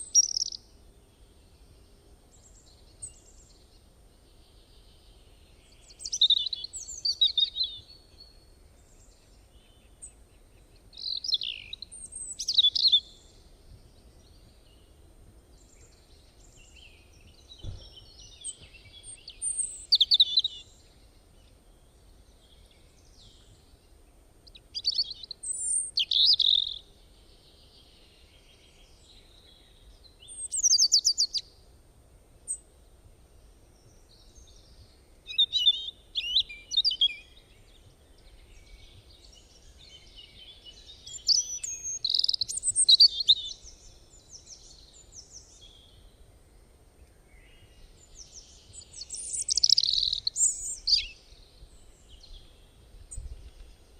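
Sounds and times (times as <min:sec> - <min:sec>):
bird chirps and trills: 0:00.0 - 0:00.6, 0:05.7 - 0:10.1, 0:10.9 - 0:13.4, 0:24.5 - 0:26.9, 0:30.2 - 0:31.4, 0:34.0 - 0:45.9, 0:47.5 - 0:52.5.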